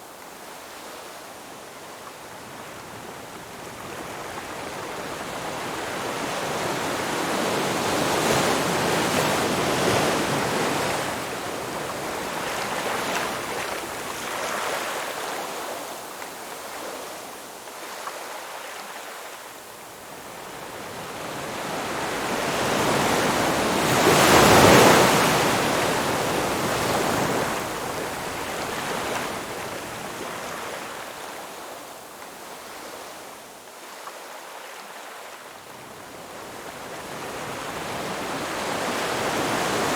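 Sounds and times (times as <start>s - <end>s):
ocean waves breaking on shore: 20.5s - 31.8s, 32.4s - 39.9s.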